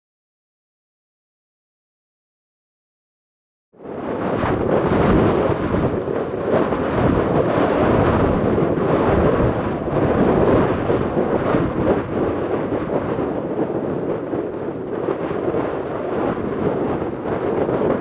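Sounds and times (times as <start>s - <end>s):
wind buffeting microphone: 3.8s - 18.0s.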